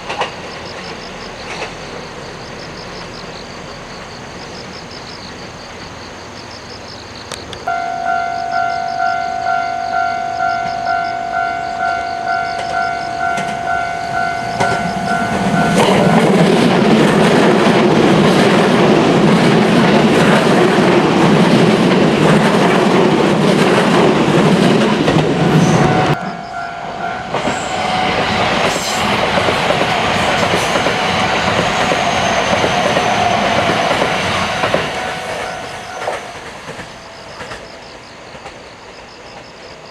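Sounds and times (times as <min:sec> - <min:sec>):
train passing with clattering wheels: 0:00.0 - 0:39.9
level crossing warning bell: 0:07.6 - 0:17.4, 0:25.1 - 0:37.6.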